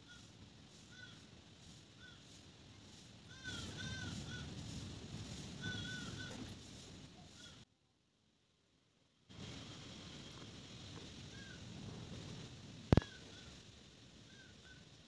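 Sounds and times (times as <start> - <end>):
bird calling: 3.3 - 4.6, 5.6 - 6.5, 12.9 - 13.6.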